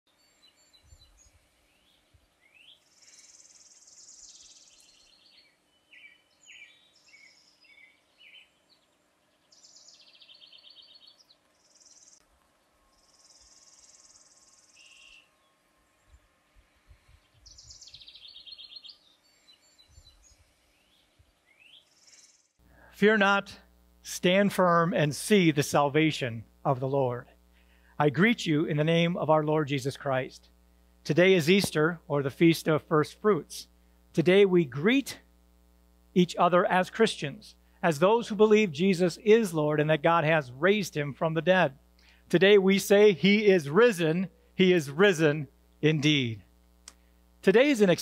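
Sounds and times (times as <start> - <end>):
faint songbirds singing: 0.1 - 22.6.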